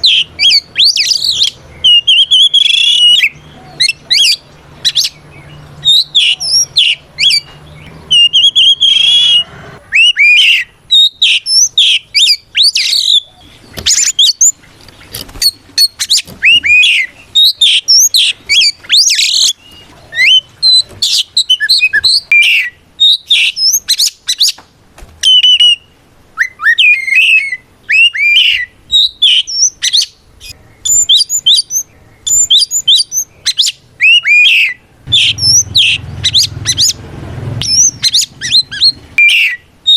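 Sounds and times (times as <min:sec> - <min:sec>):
bird singing whistles and chirps: 0:00.0 - 0:24.6, 0:25.2 - 0:37.0, 0:37.6 - 0:39.9.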